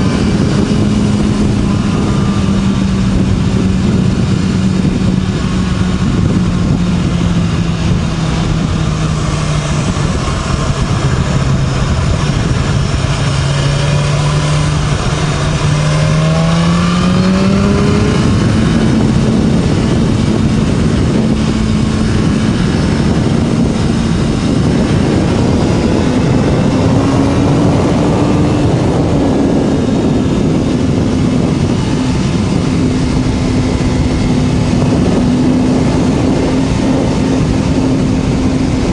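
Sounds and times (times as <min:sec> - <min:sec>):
motorcycle engine running: 0:00.0 - 0:38.9
wind rush: 0:00.0 - 0:38.9.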